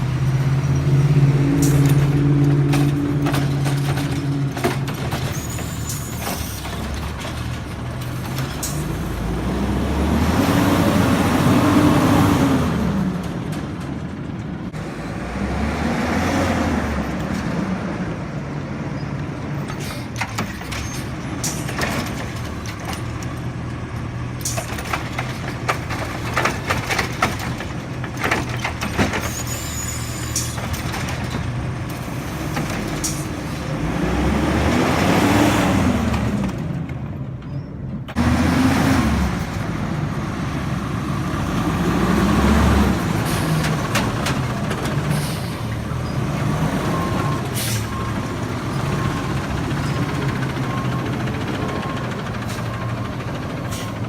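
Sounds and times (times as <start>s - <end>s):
garbage truck engine revving: 0.0s - 13.5s, 14.7s - 18.6s, 24.4s - 36.9s, 38.1s - 54.0s
clanks and knocks: 1.6s - 8.9s, 24.4s - 29.5s.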